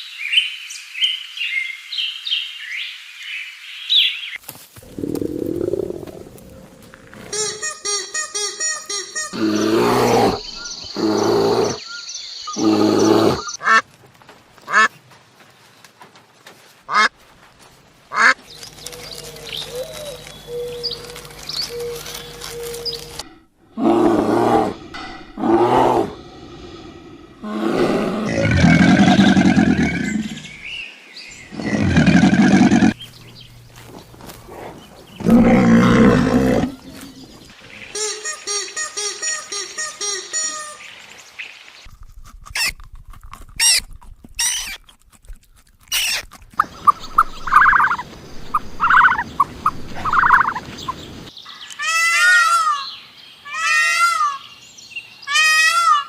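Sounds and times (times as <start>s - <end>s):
large animal roaring: 4.8s - 7.2s, 9.4s - 11.8s, 12.6s - 13.5s, 23.1s - 30.5s, 31.5s - 33.0s, 34.5s - 37.3s
ducks quacking: 14.7s - 14.9s, 16.9s - 17.1s, 18.1s - 18.4s, 46.6s - 51.0s
steady low hum: 18.8s - 28.3s.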